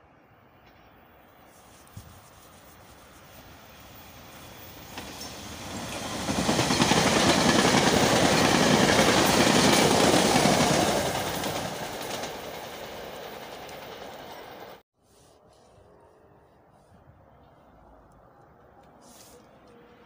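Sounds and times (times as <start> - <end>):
train passing at speed: 2.7 - 14.8.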